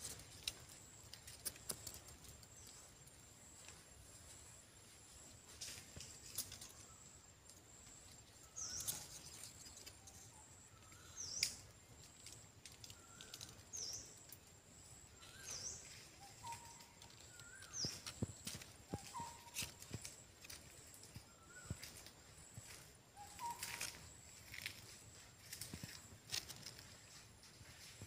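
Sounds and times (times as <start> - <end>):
bird chip call: 15.3 - 20.2, 23.2 - 24.1.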